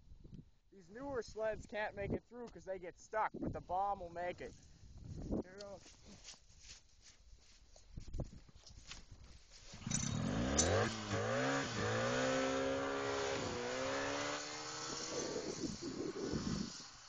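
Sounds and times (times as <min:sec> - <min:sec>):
snowmobile engine revving: 0:10.0 - 0:17.0.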